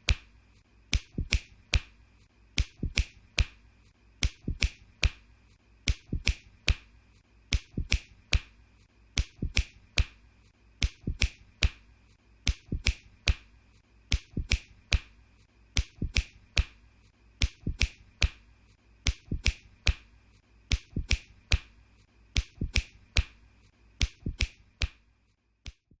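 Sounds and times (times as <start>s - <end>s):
fingers snapping: 0.0s - 0.3s, 0.9s - 3.6s, 4.2s - 5.2s, 5.8s - 6.9s, 7.5s - 10.2s, 10.8s - 11.8s, 12.4s - 13.5s, 14.1s - 15.1s, 15.7s - 16.8s, 17.4s - 18.4s, 19.0s - 20.1s, 20.7s - 21.7s, 22.4s - 23.4s, 24.0s - 25.0s, 25.6s - 25.9s.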